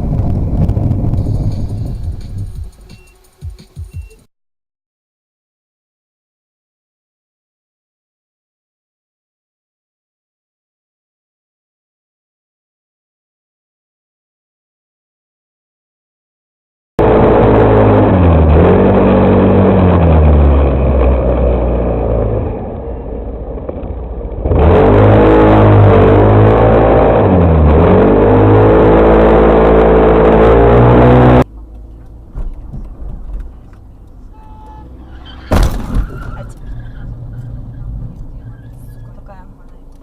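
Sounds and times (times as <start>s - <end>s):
car engine accelerating: 0.0s - 2.9s, 17.0s - 40.0s.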